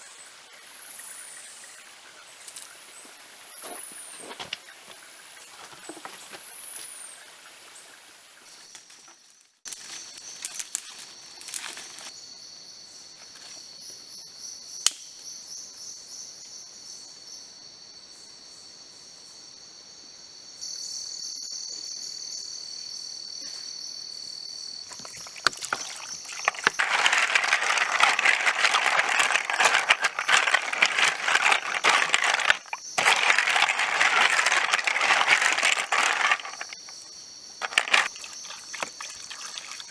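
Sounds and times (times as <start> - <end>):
dense crackling rustle: 25.0 - 39.0
insects shrilling: 37.8 - 39.9.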